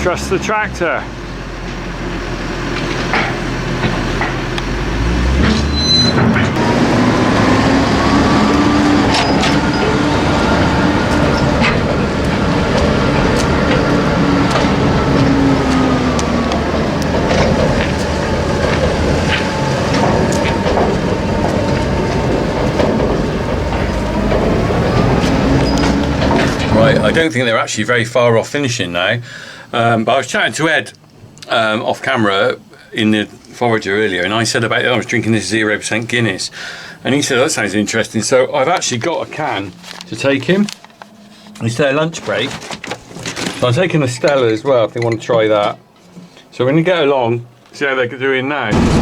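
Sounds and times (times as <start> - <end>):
vehicle engine running: 0.0 - 27.4, 48.7 - 49.0
knocks and rattles: 1.6 - 27.3, 48.7 - 49.0.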